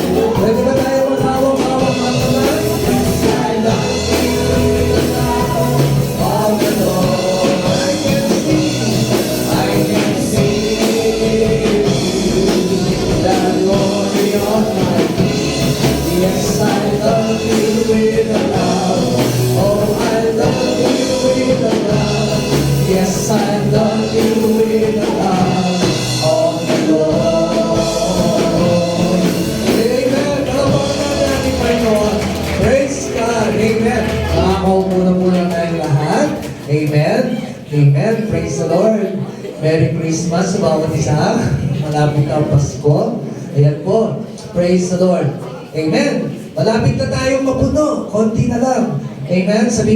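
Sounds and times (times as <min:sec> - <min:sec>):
band playing: 0:00.0 - 0:37.7
voices singing along: 0:00.0 - 0:43.0.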